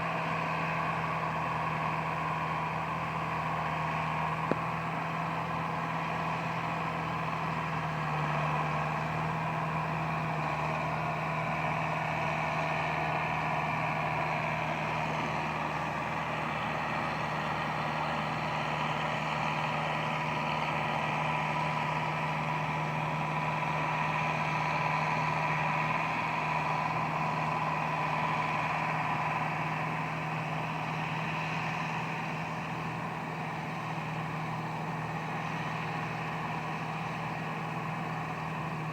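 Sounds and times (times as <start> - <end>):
tractor and baler running: 0.0 - 38.9.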